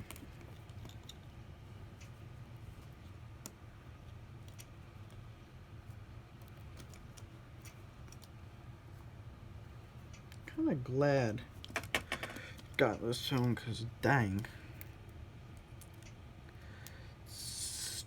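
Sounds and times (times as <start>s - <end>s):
small clicks and taps of tools: 6.4s - 8.4s.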